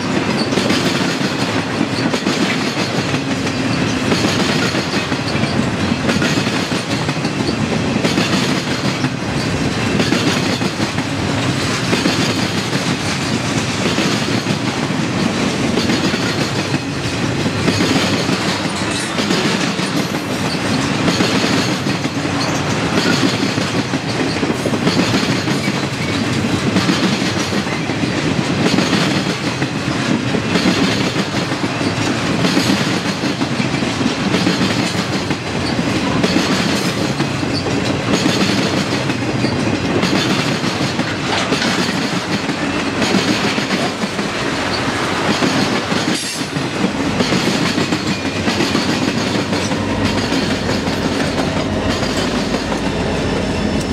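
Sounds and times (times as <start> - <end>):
diesel locomotive engine rumble: 0.0 - 53.9
train wheels clicking over rail joints: 0.0 - 53.9.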